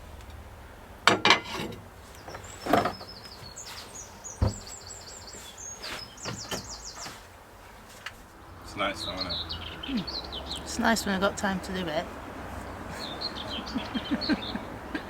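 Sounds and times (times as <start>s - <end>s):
small bird chirping: 2.0s - 7.3s, 8.7s - 11.2s, 12.6s - 15.0s
sharp knocks: 4.4s - 4.8s.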